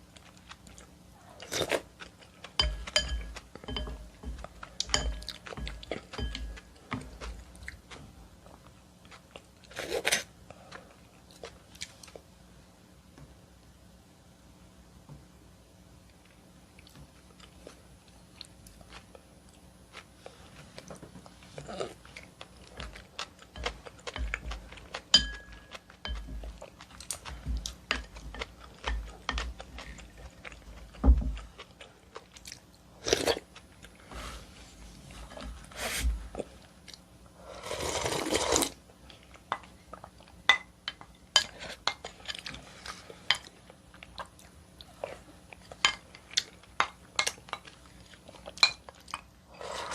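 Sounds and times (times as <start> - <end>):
chewing and wet mouth sounds: 0.0 - 12.3, 16.1 - 34.0, 38.0 - 49.3.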